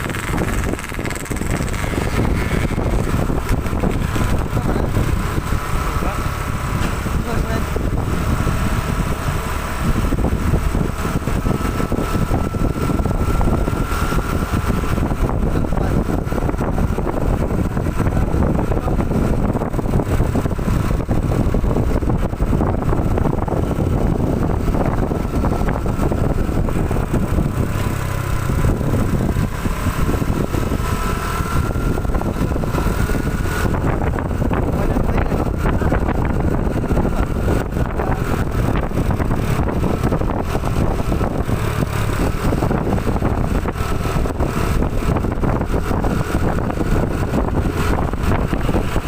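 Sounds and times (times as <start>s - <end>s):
truck engine rumbling: 0.0s - 49.0s.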